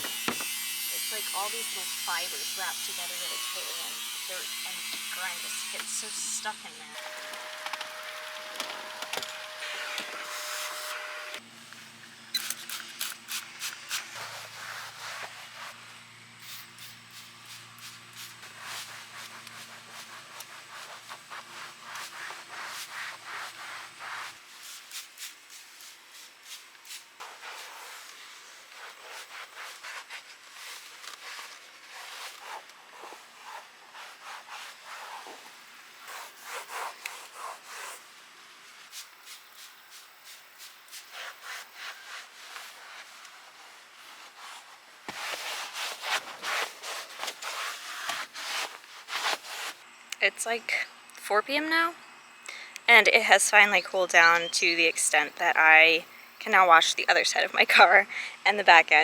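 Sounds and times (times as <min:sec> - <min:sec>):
motor whine: 0:00.0 - 0:12.3.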